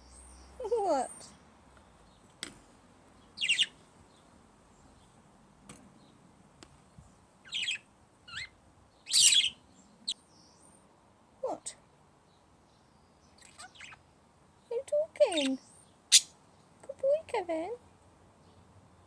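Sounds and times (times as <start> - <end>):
parrots squawking: 3.4 - 3.7, 7.5 - 8.5, 9.1 - 9.6, 13.4 - 14.0, 15.3 - 16.3.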